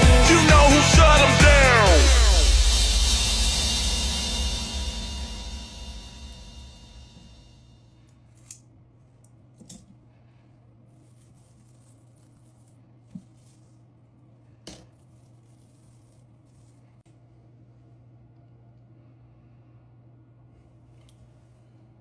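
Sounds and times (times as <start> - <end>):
background music: 0.0 - 7.2
faint low hum: 2.0 - 22.0.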